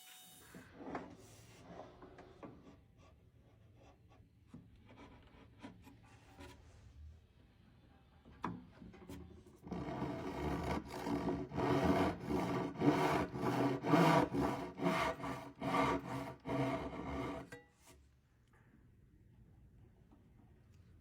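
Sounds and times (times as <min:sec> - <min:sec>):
wood being rasped: 0:09.7 - 0:17.5.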